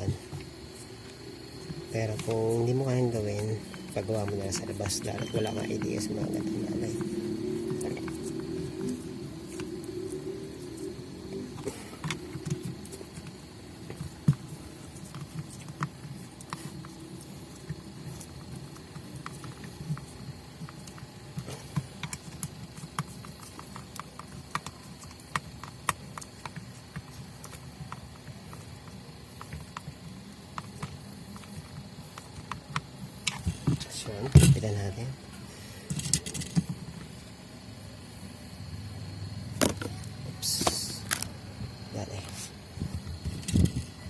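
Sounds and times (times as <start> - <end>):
low uneven rumble: 0.0 - 15.1
small parts clicking and tapping: 35.8 - 37.0.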